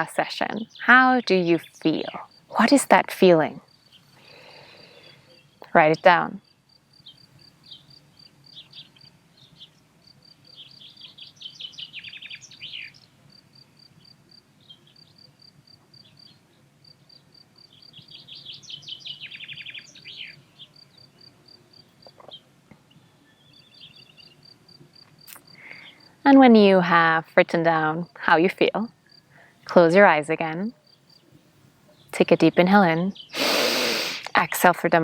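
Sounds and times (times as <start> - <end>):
songbird singing with trill: 0.4 - 13.2, 13.9 - 15.3, 16.0 - 24.6, 31.9 - 33.5
cricket chirping: 6.4 - 22.5, 23.5 - 26.2, 28.9 - 29.5, 30.8 - 31.4.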